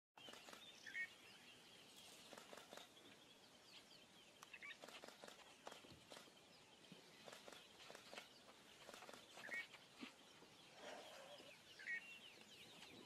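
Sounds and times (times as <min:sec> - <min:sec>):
faint bird chirps: 0:00.2 - 0:13.0.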